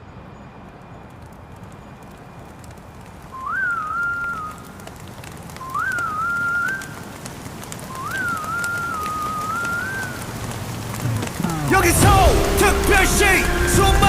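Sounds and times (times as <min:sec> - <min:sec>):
raindrops ticking: 0:01.0 - 0:14.0
rain hissing: 0:01.1 - 0:14.0
whistled melody: 0:03.3 - 0:04.8, 0:05.6 - 0:07.0, 0:07.9 - 0:10.2.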